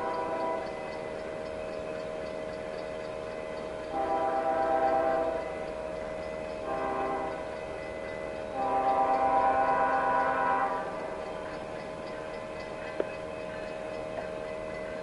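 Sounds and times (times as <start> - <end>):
locomotive air horn blasts: 0.0 - 0.7, 3.9 - 5.5, 6.6 - 7.5, 8.5 - 11.0.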